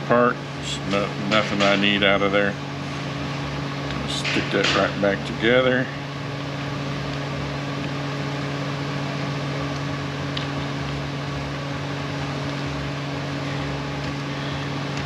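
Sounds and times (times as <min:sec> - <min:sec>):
electric motor hum: 0:00.0 - 0:15.0.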